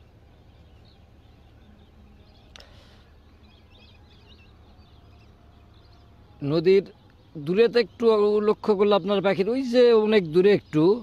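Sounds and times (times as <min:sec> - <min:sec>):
low steady rumble: 0:00.0 - 0:07.3
birds chirping: 0:00.0 - 0:11.0.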